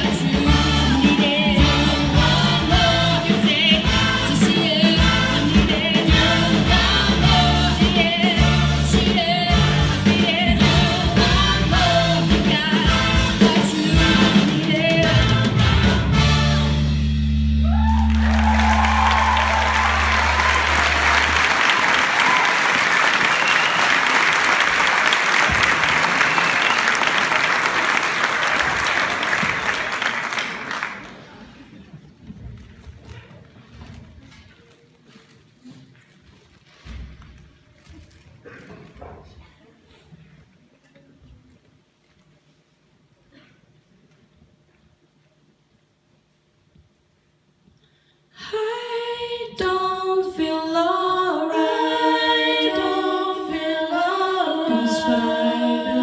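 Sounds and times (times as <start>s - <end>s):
rock band with singing: 0.0s - 21.4s
audience applause and cheering: 17.6s - 31.6s.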